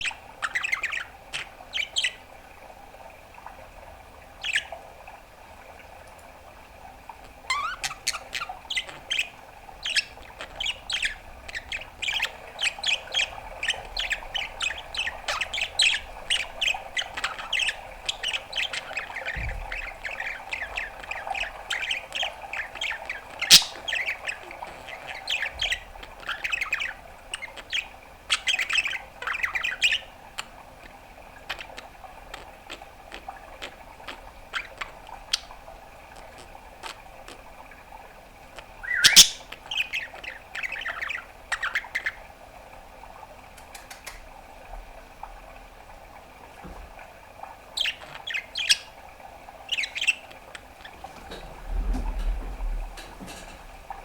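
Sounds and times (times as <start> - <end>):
budgerigar chirping and warbling: 0.0 - 2.2, 7.5 - 30.5, 38.8 - 42.2, 47.8 - 49.0, 49.7 - 50.7.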